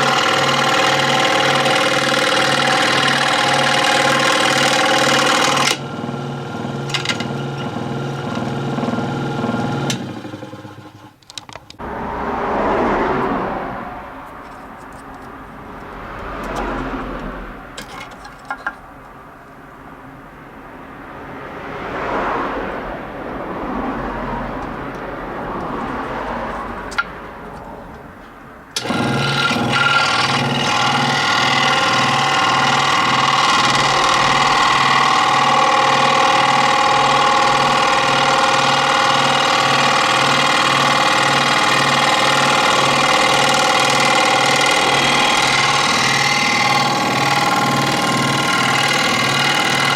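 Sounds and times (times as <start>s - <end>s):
electric scroll saw running: 0.0s - 11.2s, 28.8s - 49.9s
handling noises: 17.7s - 19.6s.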